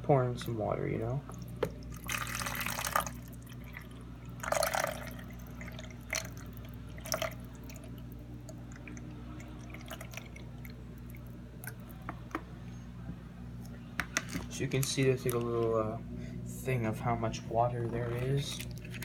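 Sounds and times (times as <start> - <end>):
water pouring into tank: 1.8 - 11.3.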